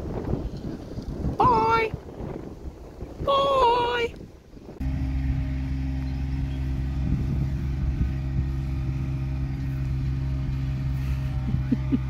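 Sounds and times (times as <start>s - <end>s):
tractor diesel engine running: 4.7s - 12.0s.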